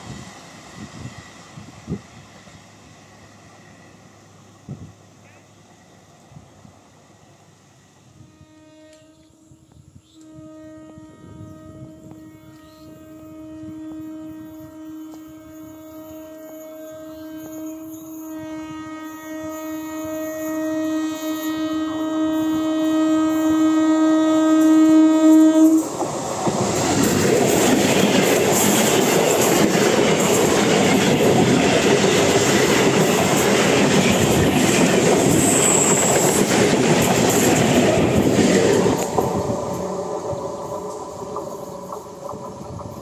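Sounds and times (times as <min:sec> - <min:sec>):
train horn blast: 0:08.0 - 0:25.9
train wheels clattering over rails: 0:25.8 - 0:43.0.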